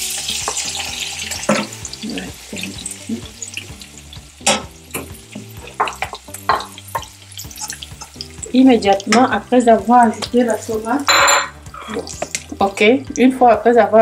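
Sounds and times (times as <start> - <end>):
meat and onions sizzling in oil: 0.0 - 14.0
wooden spatula scraping and tapping: 4.5 - 8.2.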